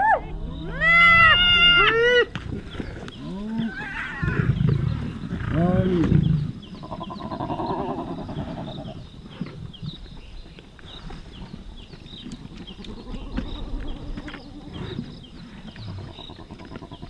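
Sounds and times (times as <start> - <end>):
lion roaring: 2.4 - 9.0
lion pulsing growl: 2.4 - 10.2, 12.6 - 17.0.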